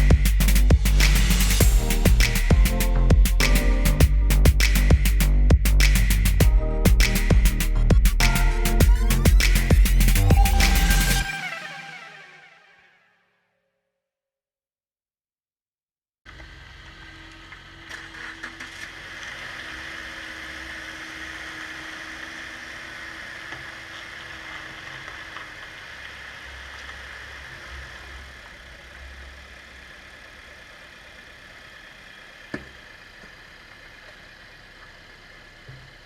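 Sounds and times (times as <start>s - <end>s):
car engine idling: 0.0s - 11.2s, 16.3s - 36.0s
sharp click: 0.0s - 11.2s.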